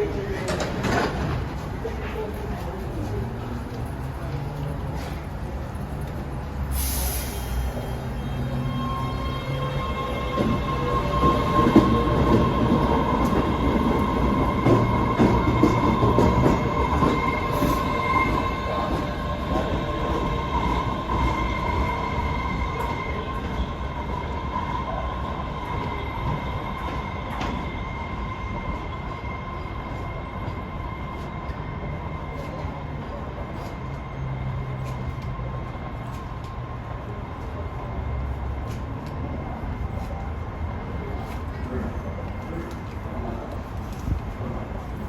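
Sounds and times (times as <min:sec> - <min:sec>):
train rumbling: 0:00.0 - 0:45.0
high-pitched train squeal: 0:06.7 - 0:35.2.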